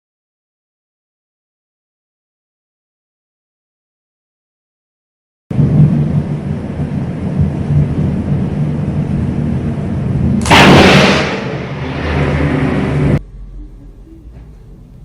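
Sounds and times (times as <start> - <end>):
loud thunder crack: 5.5 - 13.2
low thunder rumble: 5.5 - 13.2.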